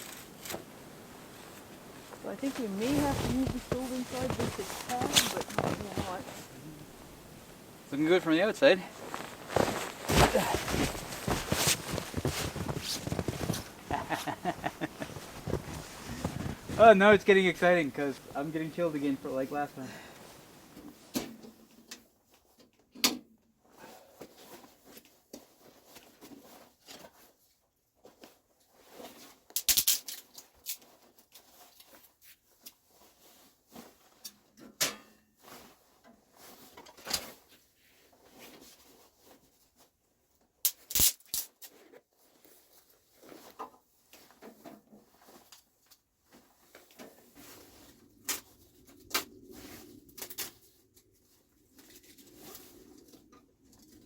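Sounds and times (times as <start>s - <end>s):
rustling: 0.0s - 21.1s, 41.7s - 54.0s.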